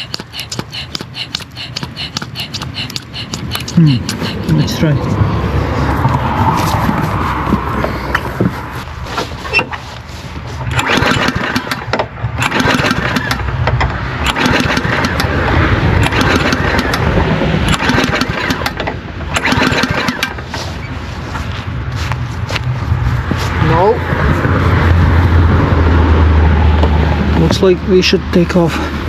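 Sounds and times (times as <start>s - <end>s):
lawnmower engine cranking: 8.2s - 20.9s.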